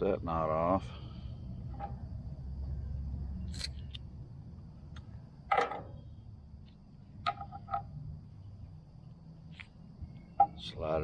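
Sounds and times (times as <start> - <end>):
hand tool clicks and snaps: 3.5 - 4.0.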